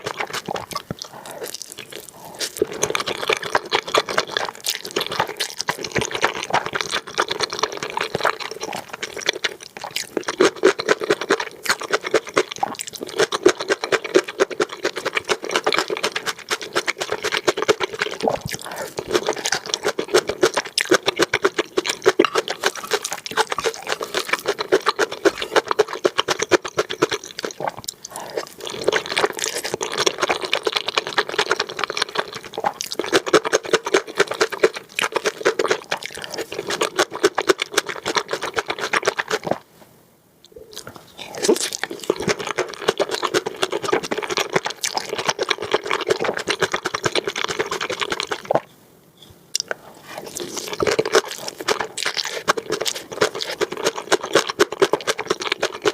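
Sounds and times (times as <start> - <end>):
mouth clicks and smacks: 0.0 - 39.6, 40.4 - 48.7, 49.3 - 55.9
slurping and chewing noodles: 0.0 - 39.7, 40.5 - 48.7, 49.6 - 55.9.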